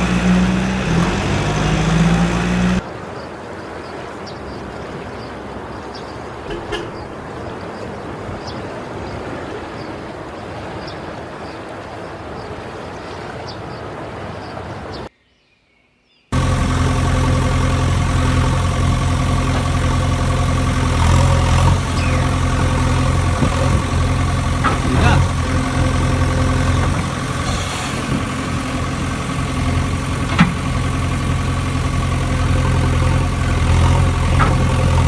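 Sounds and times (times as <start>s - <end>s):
engine idling: 0.0s - 2.8s, 5.4s - 7.8s, 16.4s - 35.0s.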